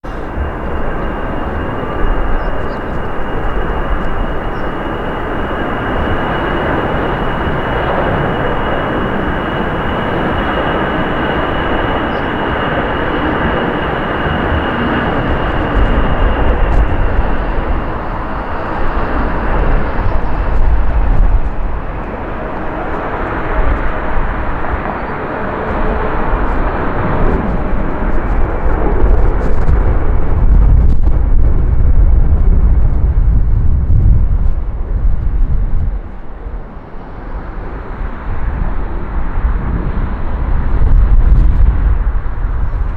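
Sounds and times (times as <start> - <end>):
deep low rumble: 0.0 - 36.6
high engine whine: 0.0 - 42.9
jet engines roaring: 0.0 - 42.9.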